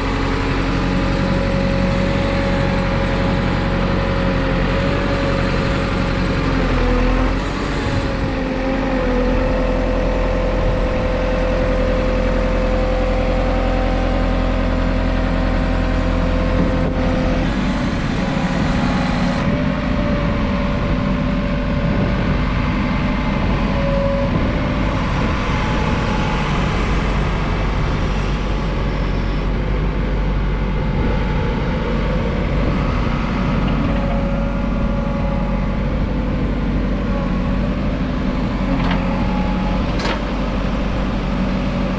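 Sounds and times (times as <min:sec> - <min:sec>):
backhoe loader diesel engine running: 0:00.0 - 0:41.9
steady whine: 0:09.3 - 0:41.9.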